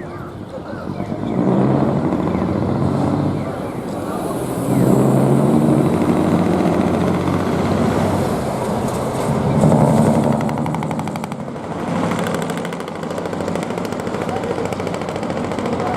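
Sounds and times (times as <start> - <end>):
diesel truck passing: 0.0 - 15.9.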